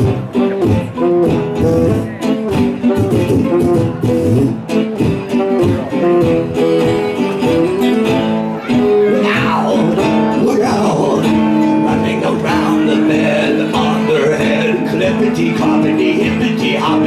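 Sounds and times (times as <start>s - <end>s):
plucked acoustic guitar: 0.0s - 17.0s.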